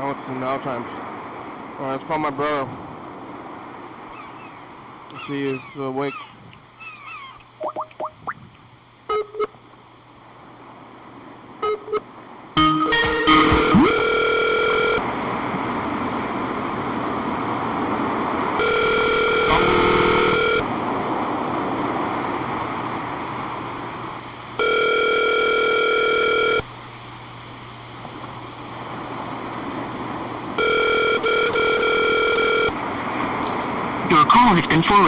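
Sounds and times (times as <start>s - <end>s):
phone line hiss: 9.1s - 9.6s, 11.6s - 15.5s, 18.4s - 20.8s, 24.6s - 26.7s, 30.6s - 35.0s
telephone ringback tone: 12.6s - 15.1s, 18.6s - 20.7s, 24.6s - 26.6s, 30.6s - 32.8s.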